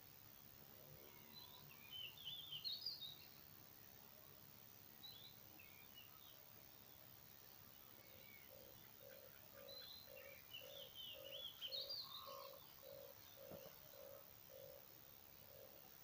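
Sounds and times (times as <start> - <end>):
birds chirping and twittering: 0.8 - 3.5, 5.0 - 16.0
bird repeating low calls: 8.3 - 14.9.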